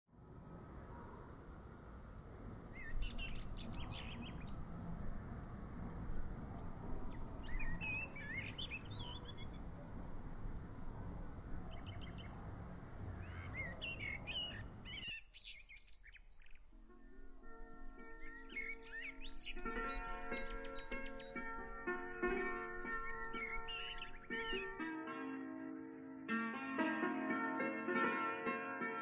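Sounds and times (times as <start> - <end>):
birds chirping: 2.7 - 24.9.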